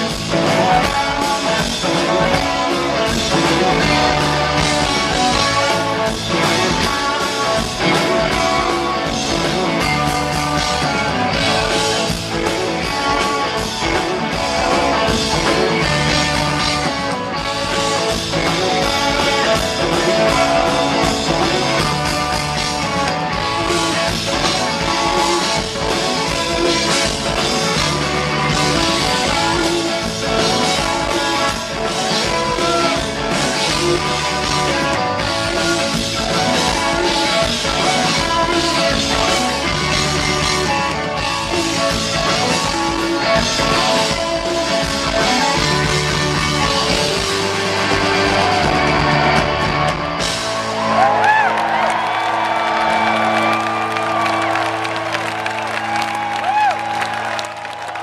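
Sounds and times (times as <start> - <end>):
drum kit steady beat: 0.0 - 53.1
bass guitar: 0.0 - 58.0
electric guitars: 0.0 - 58.0.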